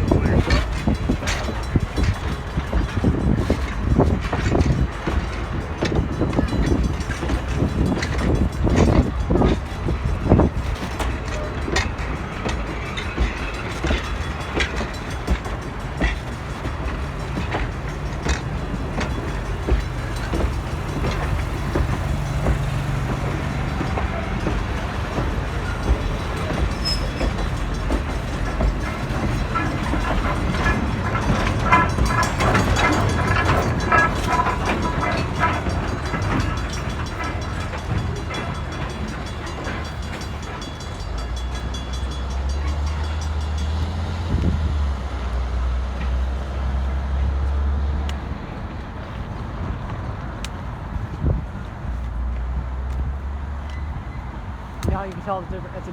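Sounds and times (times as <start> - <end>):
train rumble: 0.0 - 55.9
wheels clicking over rail joints: 0.0 - 55.9.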